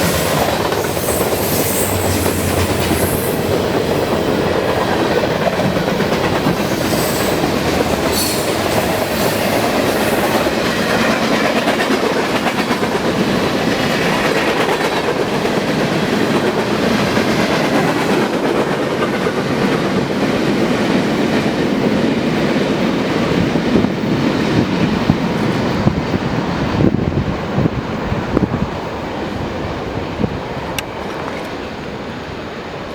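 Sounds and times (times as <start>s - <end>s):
wheels clacking over rail joints: 0.0s - 26.2s
train wheels rumbling on rails: 0.0s - 32.9s.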